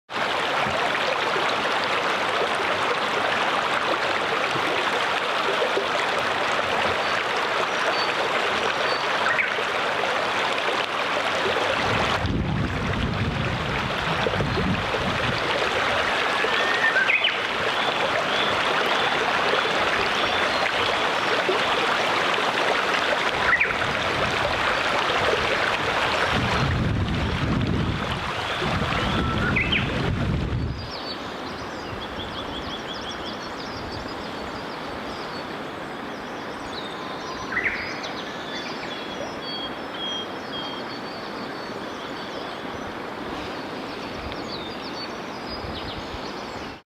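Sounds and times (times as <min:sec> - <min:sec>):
stream rushing: 0:00.1 - 0:46.8.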